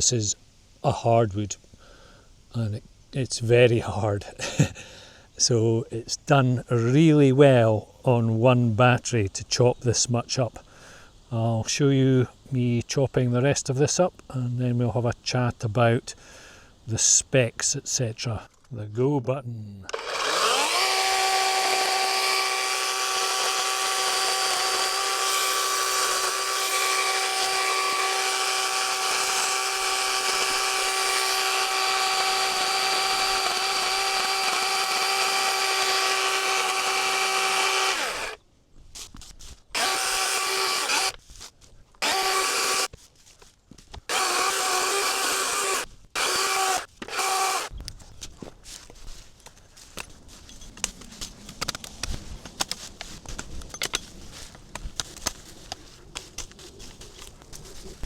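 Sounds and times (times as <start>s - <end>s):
electric chainsaw cutting logs: 19.9s - 38.4s, 39.7s - 41.2s, 42.0s - 42.9s, 44.1s - 47.7s.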